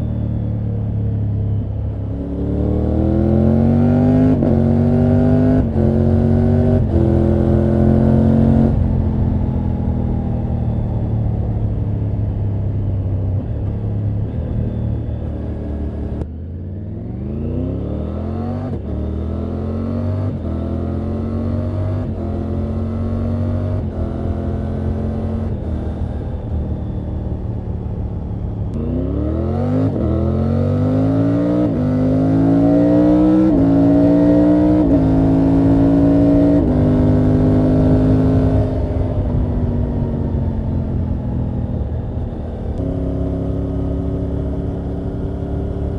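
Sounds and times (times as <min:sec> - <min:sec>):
motorcycle engine and exhaust: 0:00.0 - 0:45.9.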